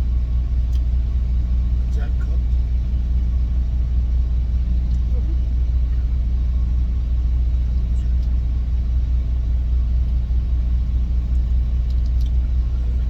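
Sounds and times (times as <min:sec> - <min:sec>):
engine idling low rumble: 0:00.0 - 0:13.0
faint ticks: 0:11.3 - 0:12.5.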